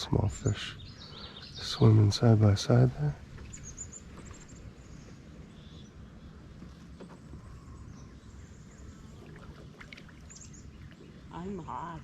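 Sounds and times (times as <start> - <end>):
low water wash: 6.3 - 12.0.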